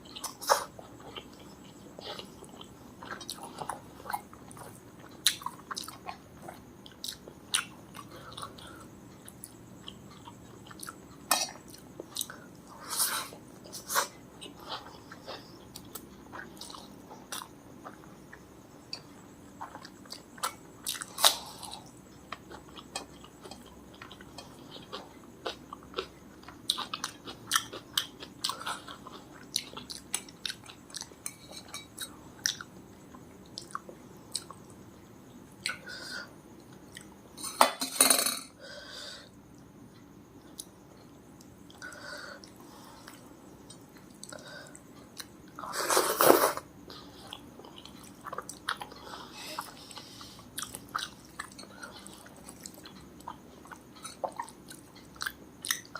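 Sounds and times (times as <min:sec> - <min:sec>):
person chewing food: 0:00.1 - 0:12.8, 0:13.6 - 0:34.8, 0:46.8 - 0:55.9.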